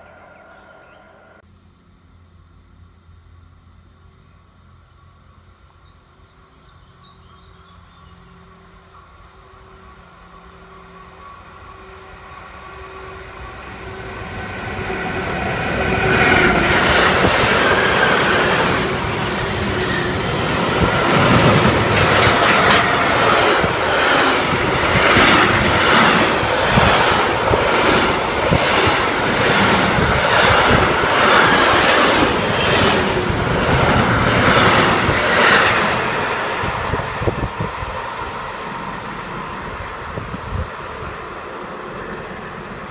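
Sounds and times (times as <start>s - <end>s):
train rumbling past: 0.0s - 42.9s
wheels clicking over rails: 16.2s - 36.6s.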